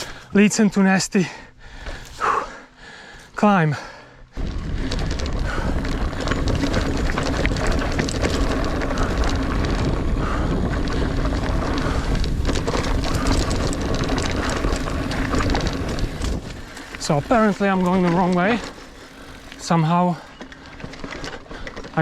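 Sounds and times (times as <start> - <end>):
bike tyres rumbling on dirt: 3.7 - 22.0
wind on microphone: 4.3 - 17.4
bike clicks and rattles: 4.3 - 22.0.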